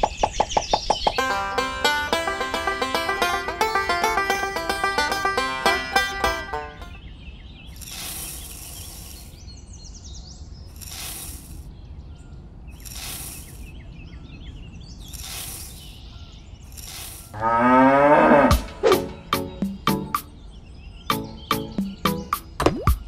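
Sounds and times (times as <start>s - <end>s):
faint bird chirps: 7.0s - 17.3s
short hissing rushes: 7.8s - 9.4s, 10.7s - 11.7s, 12.8s - 13.7s, 15.1s - 15.9s, 16.7s - 17.3s
cow mooing: 17.4s - 18.7s.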